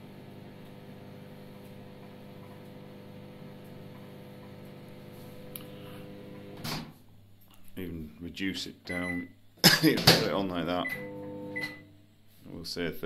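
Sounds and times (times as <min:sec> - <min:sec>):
microwave oven humming: 0:00.0 - 0:06.9, 0:10.6 - 0:12.0.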